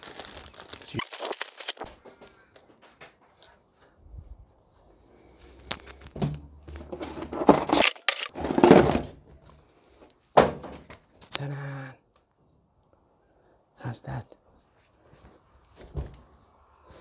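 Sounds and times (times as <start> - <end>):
packaging rustling: 0.0 - 2.0, 6.8 - 9.1.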